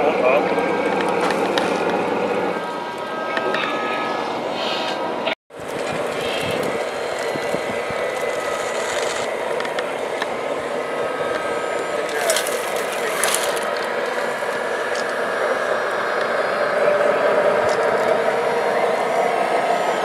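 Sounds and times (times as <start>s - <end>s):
model truck motors whirring: 5.5s - 20.0s
hissing bursts: 5.6s - 16.4s.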